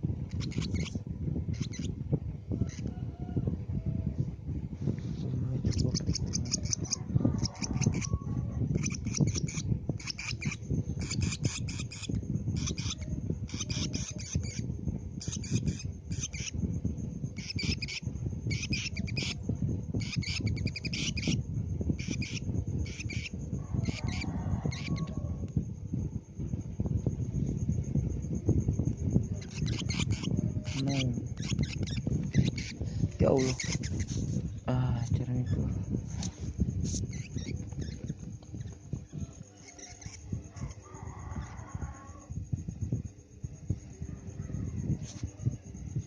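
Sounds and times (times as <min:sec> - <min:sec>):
low rumble: 0:00.0 - 0:46.0
lovebird chirping: 0:00.3 - 0:02.0, 0:05.3 - 0:16.6, 0:17.3 - 0:25.2, 0:29.1 - 0:36.4, 0:37.0 - 0:40.8.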